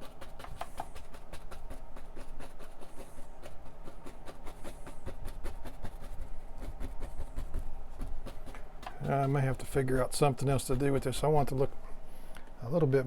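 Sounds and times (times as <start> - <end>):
paint brush tapping on canvas: 0.0 - 9.4.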